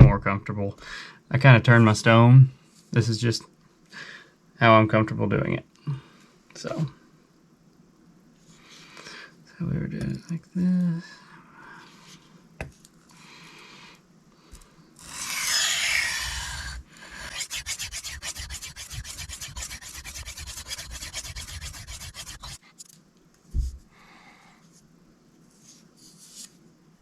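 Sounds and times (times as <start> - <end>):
knife scraping on sharpening stone: 17.2 - 22.6.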